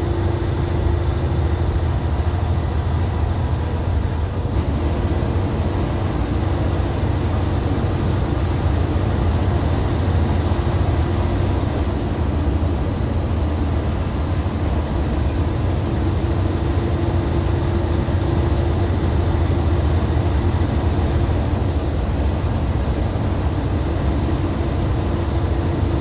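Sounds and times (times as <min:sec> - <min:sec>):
diesel coach engine running: 0:00.0 - 0:26.0.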